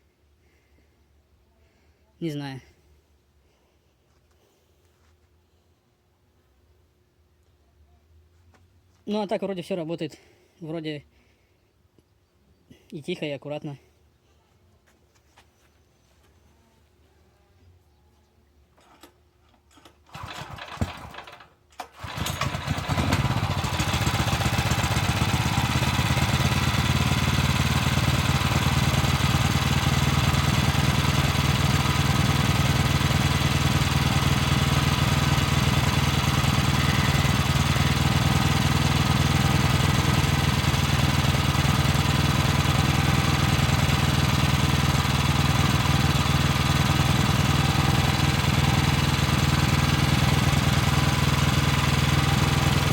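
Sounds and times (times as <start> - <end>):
petrol engine cranking and starting: 18.8 - 52.9.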